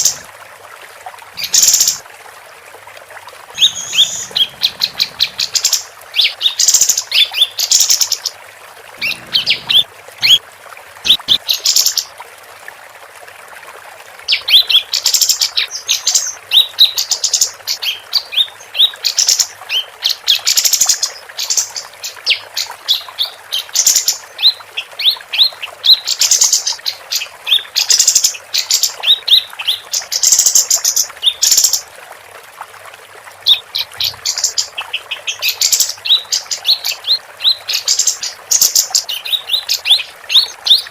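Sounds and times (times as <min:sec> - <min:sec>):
songbird chirps and trills: 0:03.5 - 0:08.4, 0:09.0 - 0:10.4, 0:33.5 - 0:40.9.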